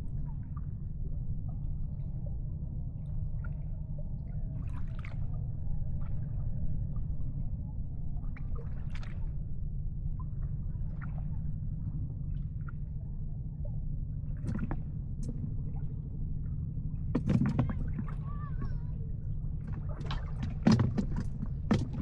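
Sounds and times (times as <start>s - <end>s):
steady low rumble: 0.0s - 22.0s
water lapping and gurgling: 0.0s - 22.0s
small water splashes: 4.6s - 5.4s, 8.2s - 9.4s, 14.3s - 15.9s, 17.2s - 18.9s, 19.6s - 22.0s.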